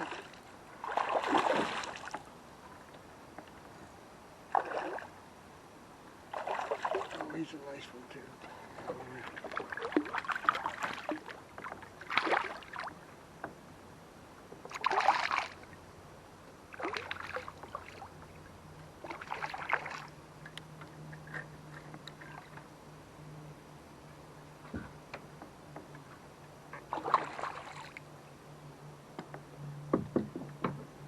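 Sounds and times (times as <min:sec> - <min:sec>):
water splashing beside a kayak: 0:00.0 - 0:03.7, 0:04.5 - 0:05.2, 0:06.2 - 0:07.5, 0:08.3 - 0:13.0, 0:14.5 - 0:15.8, 0:16.6 - 0:20.2, 0:26.8 - 0:28.1.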